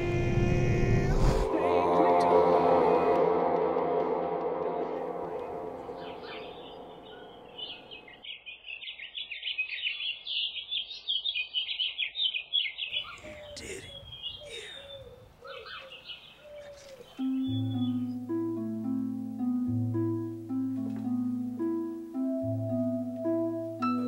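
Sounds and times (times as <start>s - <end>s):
music track: 0.0s - 8.1s, 17.2s - 24.0s
birds chirping: 5.1s - 22.0s.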